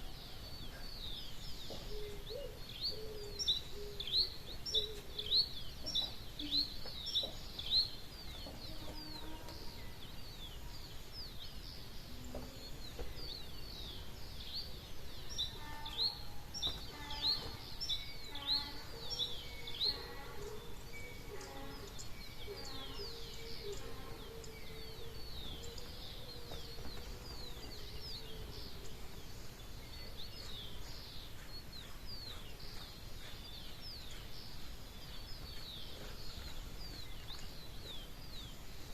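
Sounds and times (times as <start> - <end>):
lower repeated bird call: 11.8 - 34.3.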